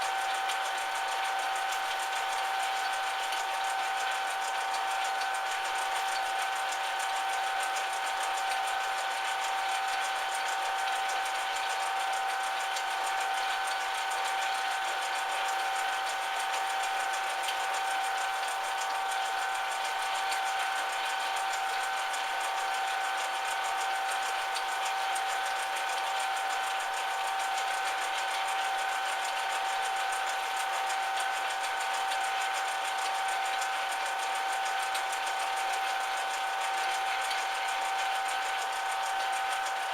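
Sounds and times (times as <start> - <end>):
metal lathe whining: 0.0 - 39.9.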